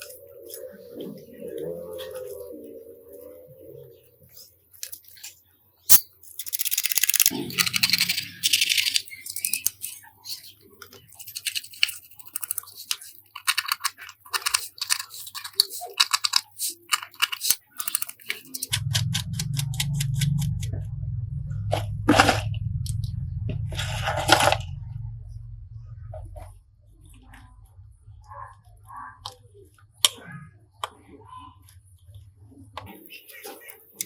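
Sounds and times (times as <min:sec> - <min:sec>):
small parts clicking: 0:04.7 - 0:20.5
tools scraping: 0:04.8 - 0:05.3, 0:05.9 - 0:19.2
low steady hum: 0:18.2 - 0:30.2.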